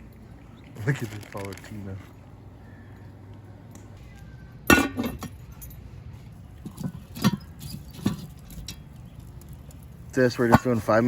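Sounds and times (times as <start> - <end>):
camp cooking gear clanking: 0.6 - 2.1, 4.7 - 5.8, 6.6 - 11.0.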